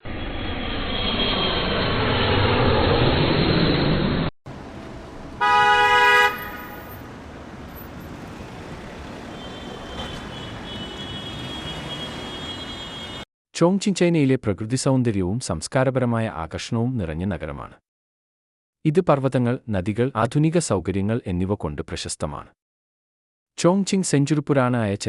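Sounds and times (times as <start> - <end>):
traffic noise: 4.5 - 13.2
loud car horn: 4.8 - 7.1, 9.2 - 13.2.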